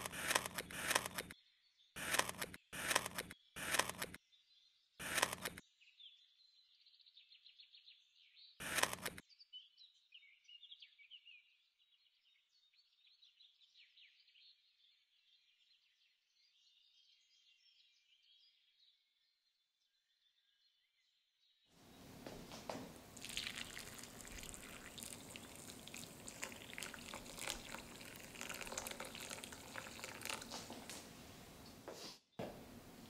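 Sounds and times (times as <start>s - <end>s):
short bursts of noise: 0.0s - 1.4s, 2.0s - 4.2s, 5.0s - 5.6s, 8.6s - 9.2s
birds chirping faintly: 21.8s - 33.0s.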